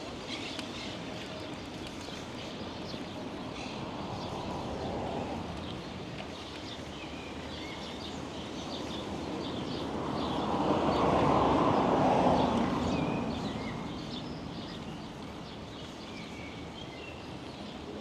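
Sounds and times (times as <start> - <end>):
vehicle passing close by: 9.6 - 14.2.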